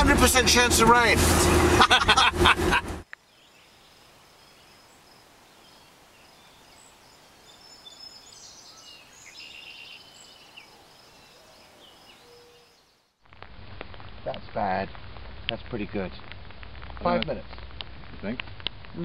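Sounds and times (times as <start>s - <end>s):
birds chirping and trilling: 3.3s - 13.1s.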